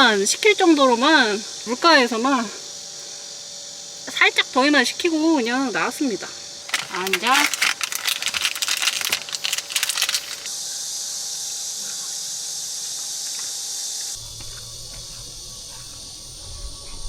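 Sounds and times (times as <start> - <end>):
high-pitched insect chorus: 0.0 - 17.0
crackling clicks: 6.7 - 10.5.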